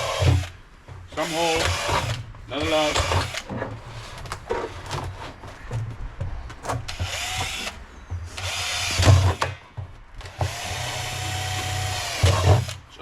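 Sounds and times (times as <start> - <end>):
power drill boring: 0.0 - 0.5, 1.2 - 3.5, 7.0 - 7.8, 8.4 - 9.5, 10.3 - 12.8.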